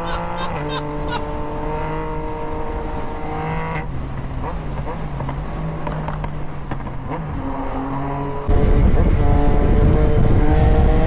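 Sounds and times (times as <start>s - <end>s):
motorcycle engine: 0.0s - 11.0s
rushing noise: 8.5s - 11.0s.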